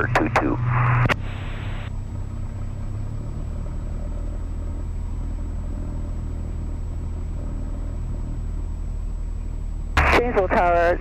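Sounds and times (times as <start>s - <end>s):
faint high whine: 0.0s - 2.1s
airplane engine low rumble: 0.0s - 11.0s.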